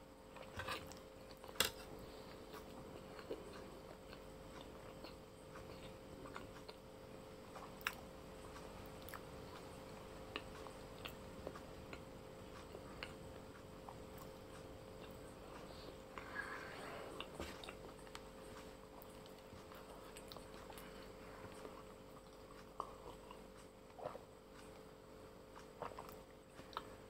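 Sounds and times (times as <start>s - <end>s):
faint steady hum: 0.0s - 27.0s
person chewing noodles: 0.2s - 27.0s.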